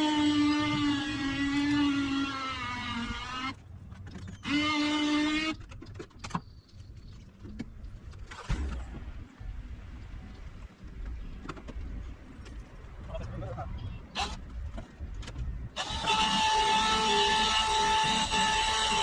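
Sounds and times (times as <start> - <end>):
small electric motor whining: 0.0 - 3.6, 4.4 - 5.6, 15.8 - 19.0.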